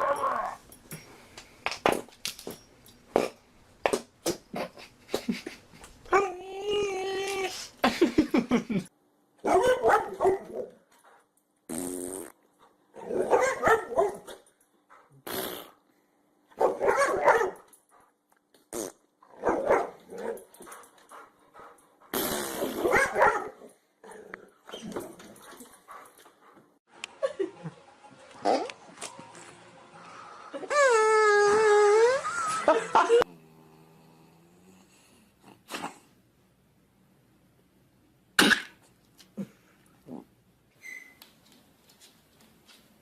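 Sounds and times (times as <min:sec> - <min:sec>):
dogs barking: 0:09.4 - 0:10.8, 0:13.0 - 0:14.4, 0:16.6 - 0:17.7, 0:19.4 - 0:20.5, 0:22.8 - 0:23.7
dogs farting: 0:11.7 - 0:12.4, 0:15.2 - 0:15.8, 0:22.1 - 0:23.1.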